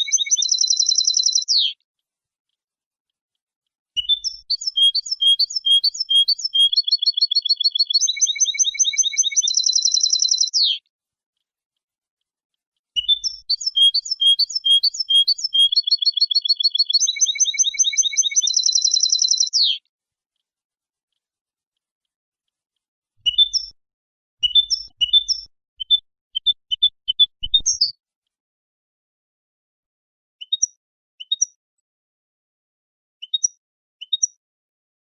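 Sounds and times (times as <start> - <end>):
goldfinch song trills: 0.0 - 1.7, 4.0 - 10.8, 13.0 - 19.8.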